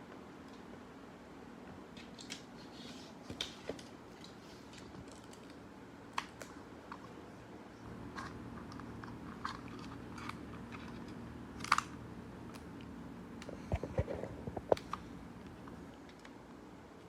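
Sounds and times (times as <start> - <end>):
faint low hum: 3.5 - 17.0.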